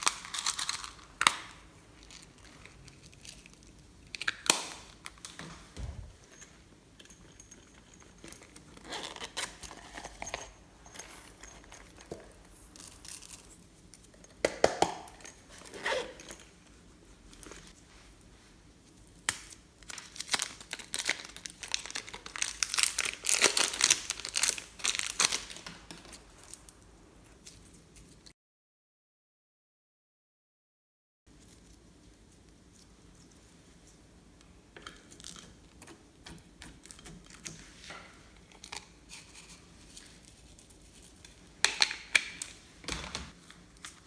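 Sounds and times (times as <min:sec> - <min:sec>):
crinkling and crackling: 0:19.3 - 0:26.8.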